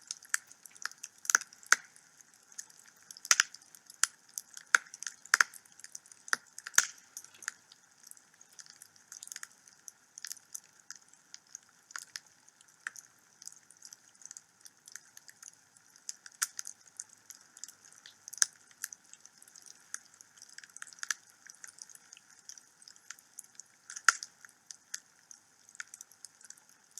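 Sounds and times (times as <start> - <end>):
wood fire crackling and popping: 0.0 - 9.5, 16.1 - 19.0, 23.9 - 24.3
faint steady hiss: 0.0 - 26.9.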